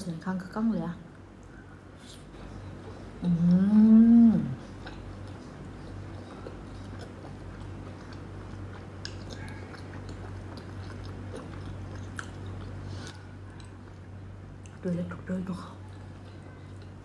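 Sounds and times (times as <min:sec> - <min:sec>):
chewing with wet clicks: 0:04.6 - 0:15.0, 0:15.8 - 0:17.0.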